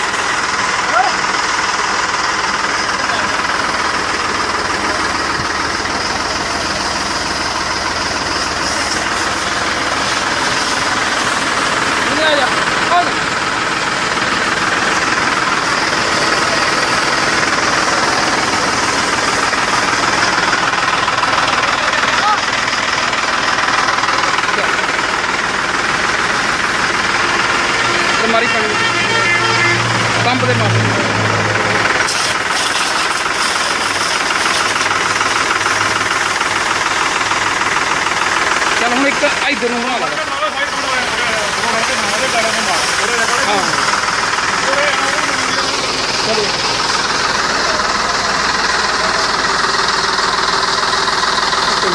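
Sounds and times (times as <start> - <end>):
tractor engine running: 0.0 - 51.9
high-pressure spray hiss: 32.1 - 35.4.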